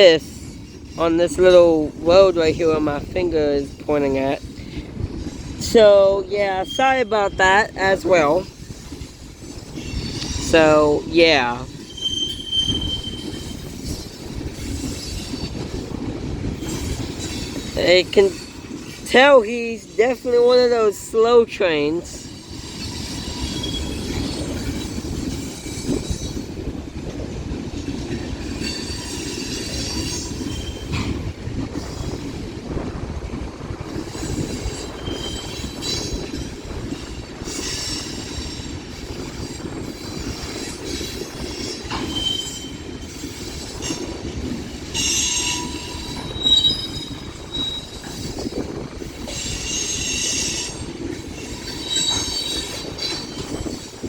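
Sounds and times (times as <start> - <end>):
train wheels rumbling on rails: 0.0 - 54.0
high-pitched wheel squeal: 11.8 - 13.8, 34.9 - 36.2, 41.9 - 42.9, 45.0 - 48.4.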